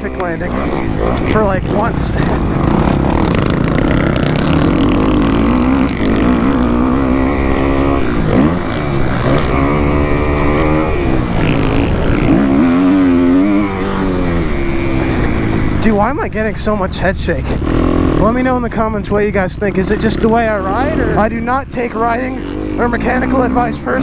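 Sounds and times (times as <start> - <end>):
wind rumbling on microphone: 0.0 - 16.4
motocross engine revving: 0.0 - 24.0.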